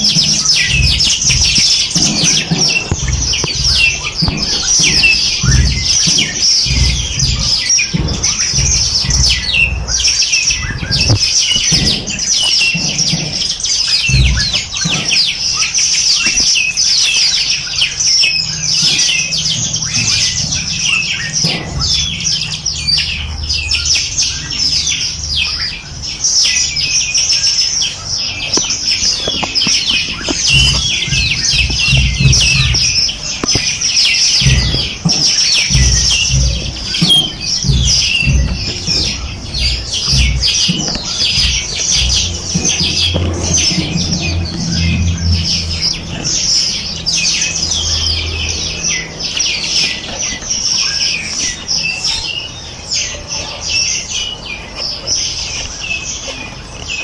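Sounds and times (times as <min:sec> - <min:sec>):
low rumbling thuds: 0:00.0 - 0:53.0
small birds chirping and trilling: 0:00.0 - 0:57.0.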